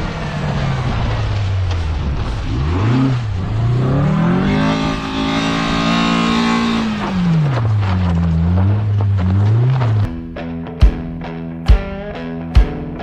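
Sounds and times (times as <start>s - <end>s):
car engine revving: 0.0s - 10.1s.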